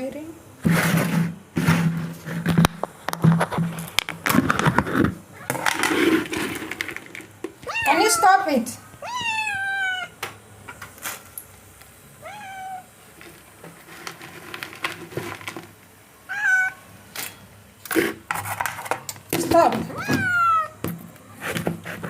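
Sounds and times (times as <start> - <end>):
cat meowing: 7.6 - 10.2, 12.2 - 12.9, 16.3 - 16.9, 19.9 - 20.8.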